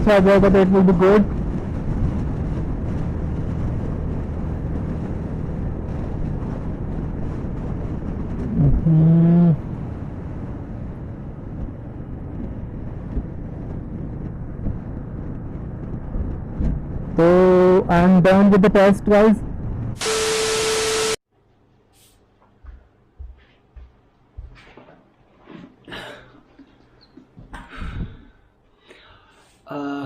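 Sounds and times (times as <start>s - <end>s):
wind rush: 0.0s - 20.0s, 27.6s - 28.4s.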